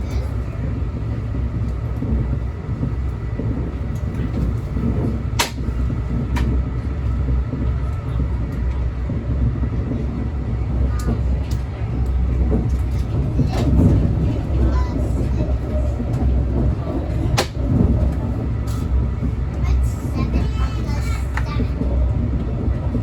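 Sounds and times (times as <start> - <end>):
train cabin rumble: 0.0 - 23.0.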